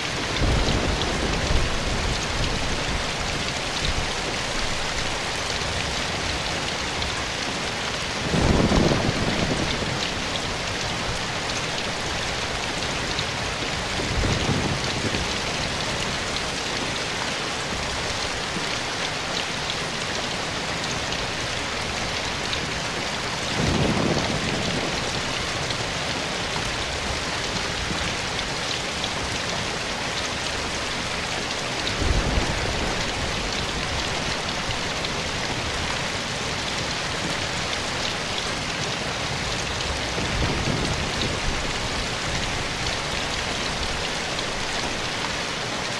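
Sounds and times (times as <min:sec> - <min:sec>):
rain falling in forest: 0:00.0 - 0:45.9.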